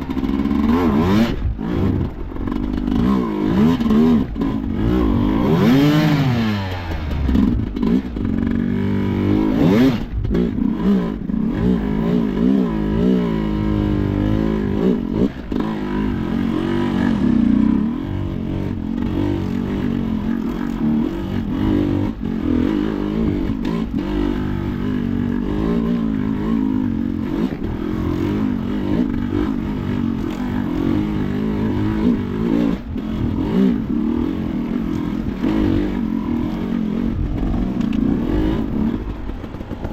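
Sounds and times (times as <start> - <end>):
motorcycle engine revving: 0.0 - 39.9
knocks and clatter from bike: 37.1 - 39.9.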